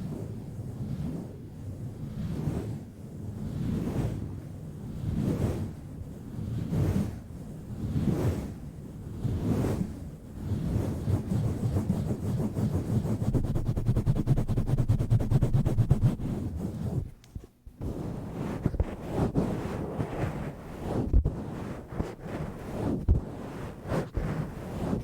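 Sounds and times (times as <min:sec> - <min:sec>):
rubbing on a microphone: 0:07.8 - 0:25.0.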